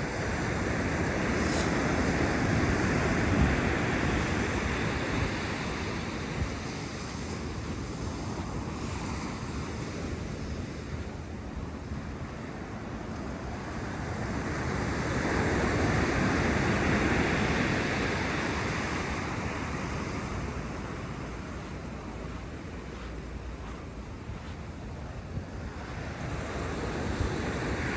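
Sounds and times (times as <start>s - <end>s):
wind on microphone: 0.0s - 10.8s.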